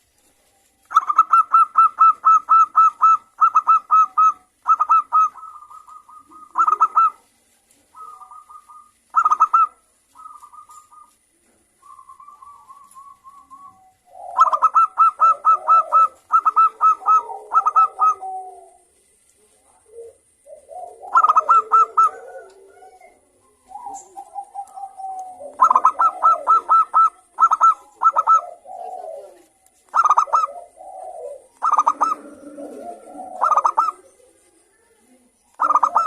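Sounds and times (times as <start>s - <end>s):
low rough bird call: 0.0s - 7.3s, 7.9s - 11.2s
doves cooing: 0.0s - 36.0s.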